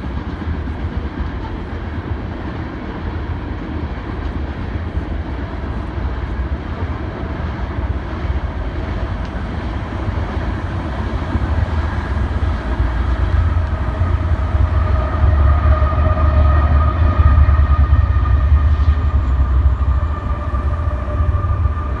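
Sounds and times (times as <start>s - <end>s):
freight train rumbling on rails: 0.0s - 22.0s
steady whine: 4.8s - 22.0s.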